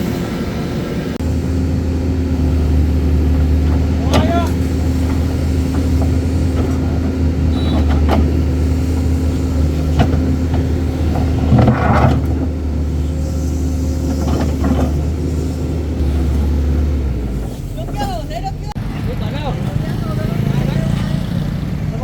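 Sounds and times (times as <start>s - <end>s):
crane engine running: 0.0s - 22.0s
loud clatter: 2.2s - 19.0s
metal knocks and clanks: 2.4s - 16.4s.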